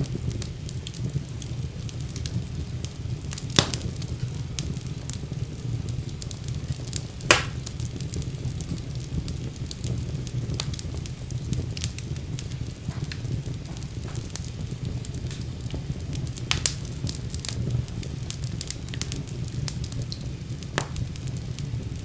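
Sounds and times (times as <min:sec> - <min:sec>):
fire crackling: 0:00.0 - 0:22.0
fire flames rumbling: 0:00.0 - 0:22.0
fire popping: 0:00.0 - 0:22.0.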